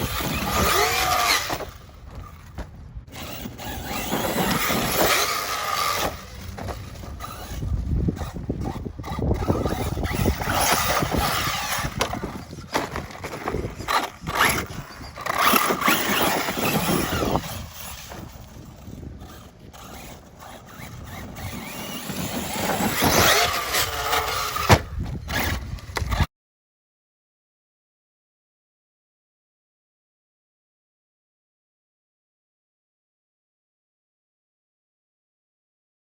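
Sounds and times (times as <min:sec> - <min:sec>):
rc car motor whine: 0:00.0 - 0:26.3
tyres scrabbling on dirt: 0:00.0 - 0:26.3.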